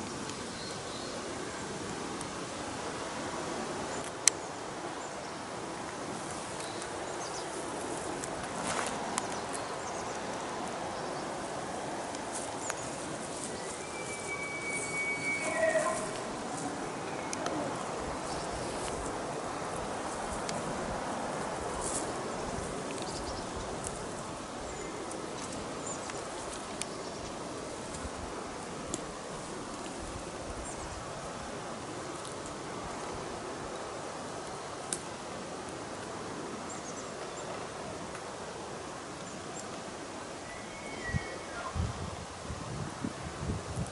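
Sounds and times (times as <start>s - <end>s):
rustle of grass and brush: 0.0s - 43.9s
footsteps through grass: 7.5s - 9.7s, 12.1s - 24.4s
faint high chirp: 13.4s - 17.7s, 40.4s - 41.8s.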